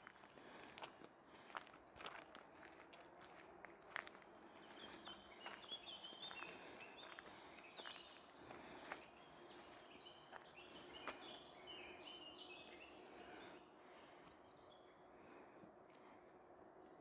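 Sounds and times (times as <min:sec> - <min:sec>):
faint birdsong: 0:00.0 - 0:17.0.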